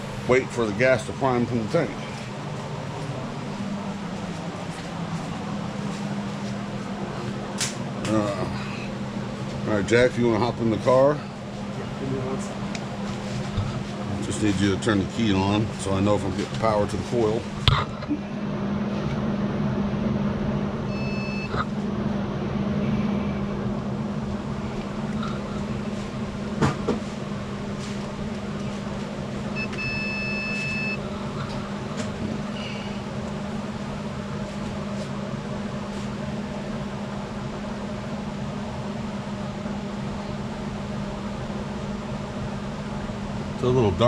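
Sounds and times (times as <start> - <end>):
low mechanical hum: 0.0 - 44.0
electronic beeps: 20.9 - 21.6, 29.6 - 31.0.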